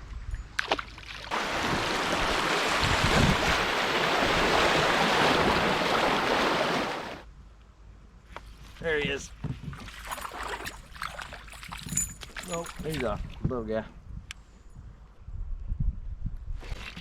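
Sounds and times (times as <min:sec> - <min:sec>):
water rushing: 0:01.3 - 0:07.2.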